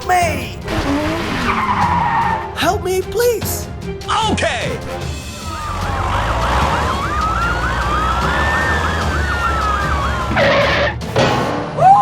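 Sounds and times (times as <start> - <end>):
siren wail: 5.3 - 11.1
siren yelping: 5.4 - 11.0.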